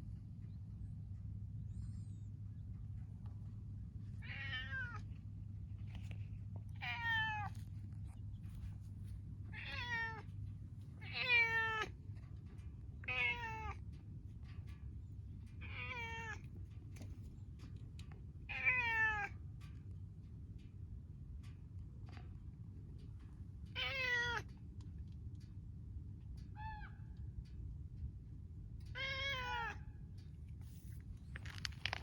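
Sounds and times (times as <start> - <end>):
steady low hum: 0.0 - 18.5
cat meowing: 4.2 - 5.0, 6.8 - 7.5, 9.6 - 10.2, 29.0 - 29.8.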